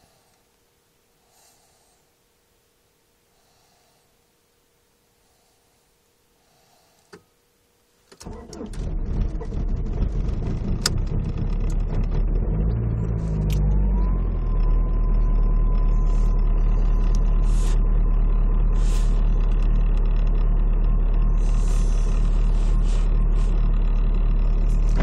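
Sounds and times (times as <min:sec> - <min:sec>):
faint steady whine: 0:00.0 - 0:09.4, 0:13.0 - 0:25.0
diesel engine idling: 0:08.2 - 0:25.0.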